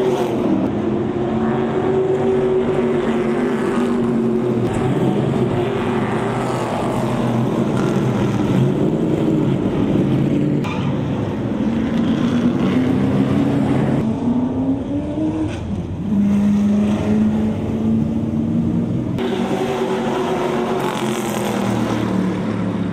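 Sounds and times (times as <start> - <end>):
race car engines: 0.0 - 22.9.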